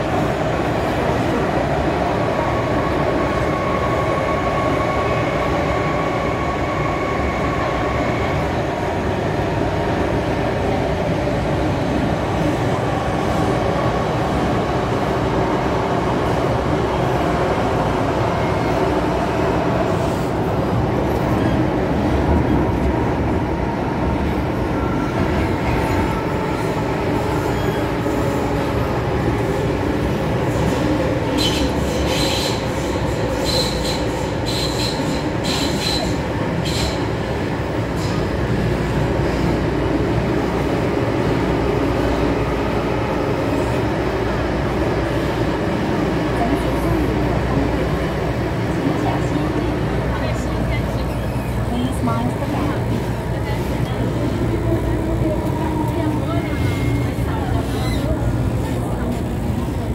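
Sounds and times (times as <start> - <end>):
train rumbling through tunnel: 0.0 - 59.9
wheels screeching on rail: 25.1 - 28.7, 30.5 - 37.2, 56.1 - 58.3.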